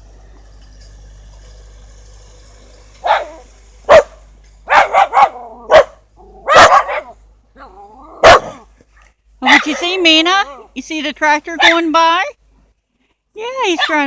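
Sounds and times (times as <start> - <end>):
tractor engine humming: 0.0 - 7.5
dog barking: 3.0 - 7.2, 8.2 - 8.6, 9.5 - 10.0, 11.6 - 11.8, 13.8 - 14.0.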